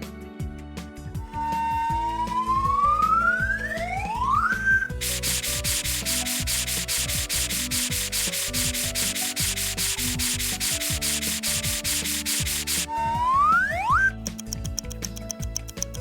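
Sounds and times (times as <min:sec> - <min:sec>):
light background music: 0:00.0 - 0:16.0
rising whistle glide: 0:01.3 - 0:05.0, 0:12.7 - 0:14.1
cartoon scrubbing rub strokes: 0:04.9 - 0:13.0.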